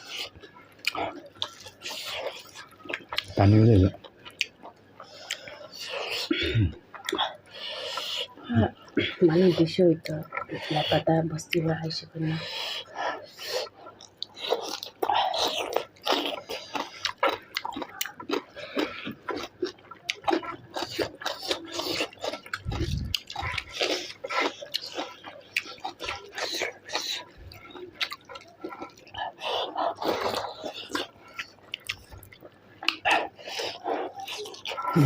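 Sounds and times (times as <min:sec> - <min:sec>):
person chewing: 0:00.0 - 0:11.7, 0:12.3 - 0:35.0.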